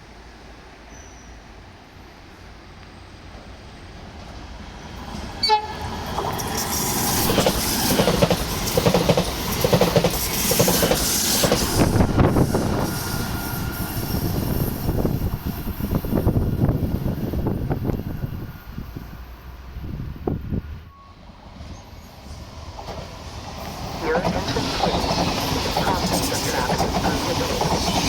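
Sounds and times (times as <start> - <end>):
train rumbling past: 0.0 - 28.0
train horn blast: 5.4 - 5.8.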